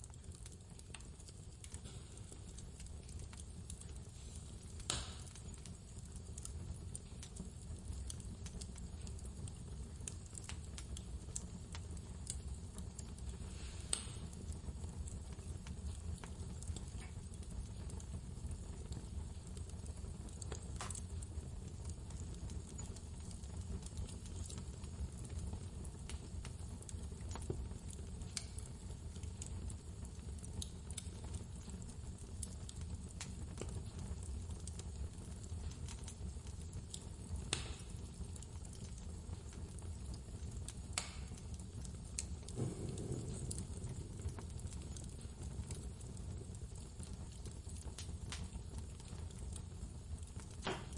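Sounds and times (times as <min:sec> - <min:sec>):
wood fire crackling and popping: 0:00.0 - 0:50.9
blizzard wind rumbling: 0:42.6 - 0:44.2.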